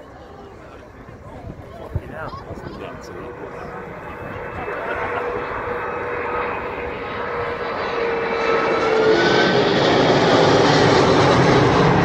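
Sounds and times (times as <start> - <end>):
jet engines roaring: 0.0 - 12.0
whining engine tone: 2.7 - 12.0.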